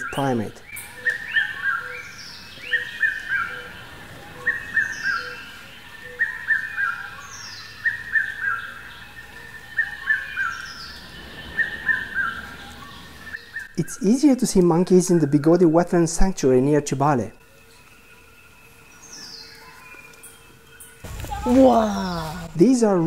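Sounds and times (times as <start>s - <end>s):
bird singing: 0.0s - 23.0s.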